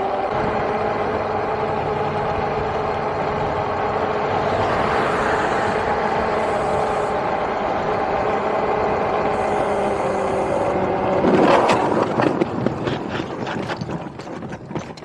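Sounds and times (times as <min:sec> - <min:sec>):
road and wind rush: 0:00.0 - 0:15.0
loud rush of air: 0:04.2 - 0:08.1.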